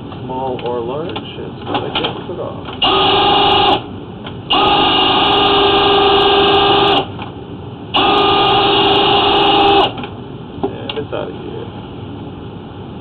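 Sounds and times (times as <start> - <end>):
drain cleaning machine whine: 2.8 - 3.9, 4.5 - 7.1, 7.9 - 10.0.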